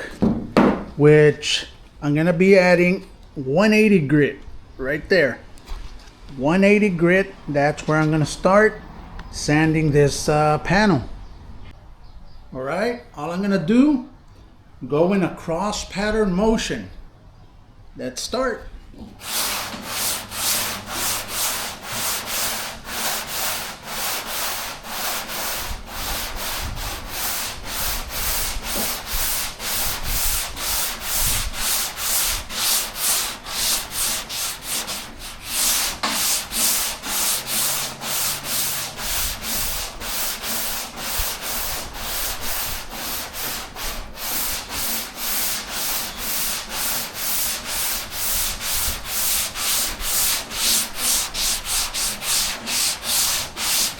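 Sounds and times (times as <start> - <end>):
sanding block rubbing primer: 19.2 - 53.9.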